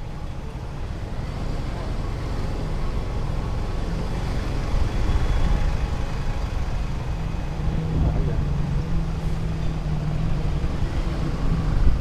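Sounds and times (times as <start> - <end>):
city traffic: 0.0 - 12.0.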